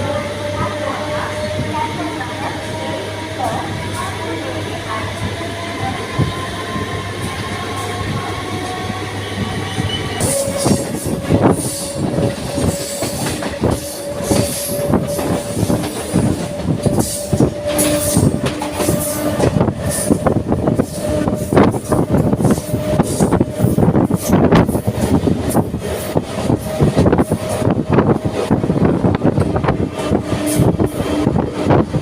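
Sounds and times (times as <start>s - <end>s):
electric train running on rails: 0.0s - 32.0s
high wheel squeal: 9.4s - 20.1s.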